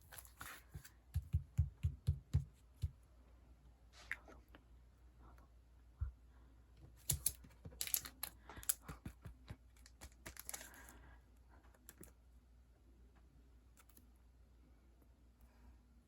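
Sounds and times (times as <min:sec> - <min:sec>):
small clicks and taps: 0:07.0 - 0:10.7
plastic packaging crinkling: 0:09.8 - 0:10.9.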